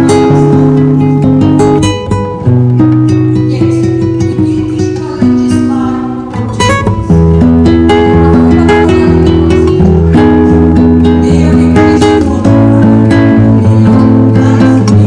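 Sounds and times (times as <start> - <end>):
plucked and strummed guitar: 0.0 - 15.0
steady bass line: 6.6 - 15.0.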